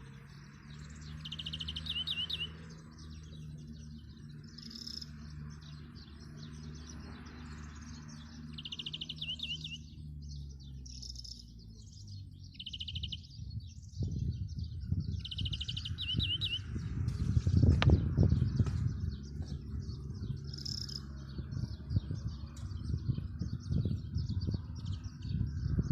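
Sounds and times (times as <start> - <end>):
songbirds trilling: 0.0 - 25.9
low rumbling noise: 9.8 - 25.9.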